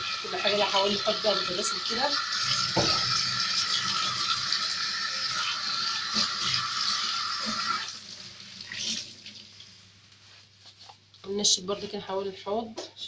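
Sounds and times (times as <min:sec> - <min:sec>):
tap water running into sink: 0:00.0 - 0:09.5.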